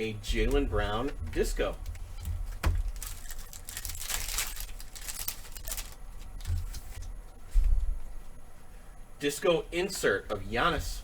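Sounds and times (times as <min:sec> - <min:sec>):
foil pack tearing: 0:02.7 - 0:06.9
wrapper crinkling: 0:02.7 - 0:07.0.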